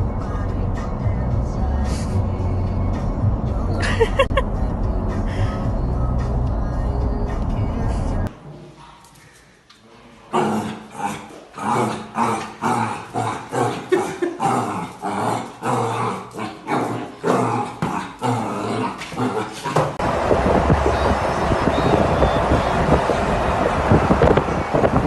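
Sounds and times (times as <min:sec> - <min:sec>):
dog growling and yipping: 0:10.4 - 0:20.0.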